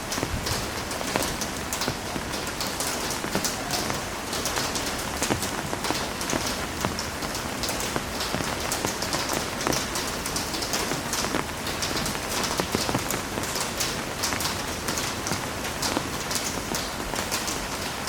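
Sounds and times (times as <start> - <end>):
heavy rain splashing on hard surface: 0.0 - 18.0.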